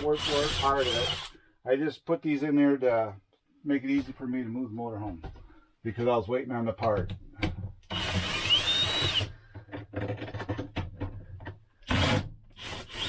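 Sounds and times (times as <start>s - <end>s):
cordless drill whining: 0.0s - 1.4s, 7.9s - 9.3s, 11.9s - 13.0s.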